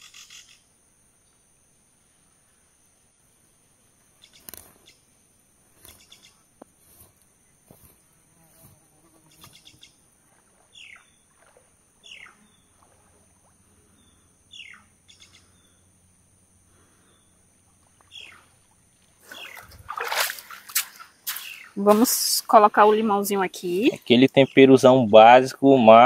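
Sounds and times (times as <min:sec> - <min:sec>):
insects droning: 0:00.0 - 0:26.0
water splashing: 0:09.4 - 0:14.0, 0:17.6 - 0:24.4.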